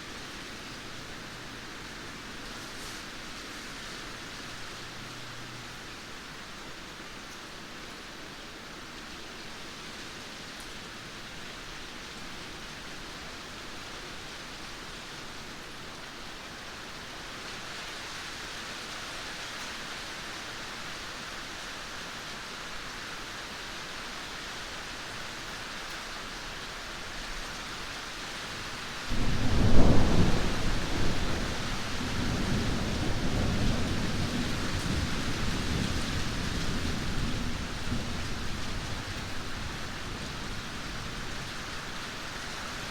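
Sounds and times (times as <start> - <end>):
steady rain hiss: 0.0 - 42.9
loud thunder clap rumbling: 29.1 - 39.0.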